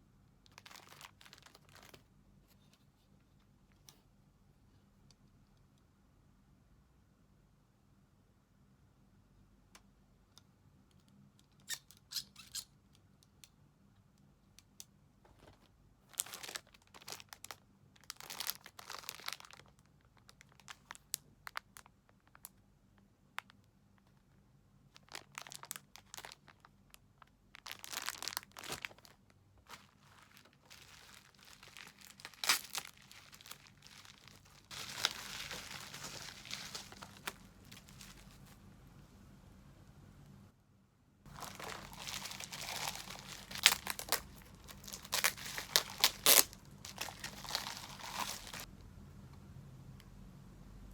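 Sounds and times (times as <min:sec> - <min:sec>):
packaging crinkling and tearing: 0:00.5 - 0:02.0, 0:15.4 - 0:22.5, 0:25.0 - 0:38.6, 0:41.3 - 0:48.7.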